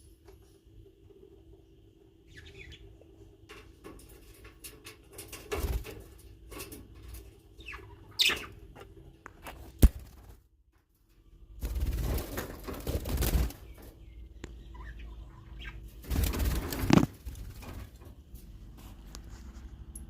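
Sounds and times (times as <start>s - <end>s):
steady low hum: 0.0s - 20.0s
birds chirping: 1.5s - 3.4s, 7.2s - 9.0s, 12.7s - 18.2s
rustling: 16.1s - 19.8s.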